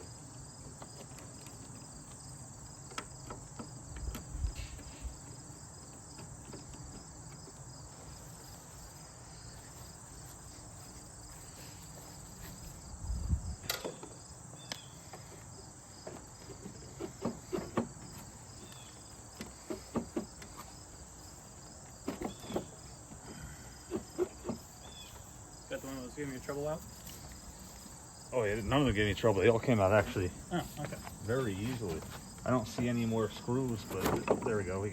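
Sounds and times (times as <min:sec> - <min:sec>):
crickets chirping: 0:00.0 - 0:34.9
hand tools clicking and knocking: 0:13.6 - 0:15.4, 0:16.0 - 0:18.8, 0:19.4 - 0:20.7.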